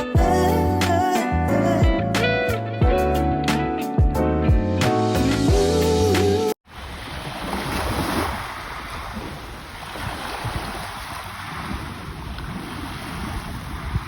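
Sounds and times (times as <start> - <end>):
background music: 0.0 - 6.6
ocean surf: 6.7 - 14.0
wind buffeting microphone: 7.0 - 14.0.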